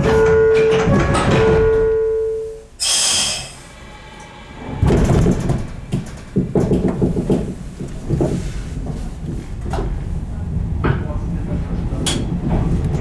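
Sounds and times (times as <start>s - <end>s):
door warning tone: 0.0s - 5.2s
air hiss of doors closing: 2.8s - 6.6s
rough rumbling: 3.6s - 13.0s.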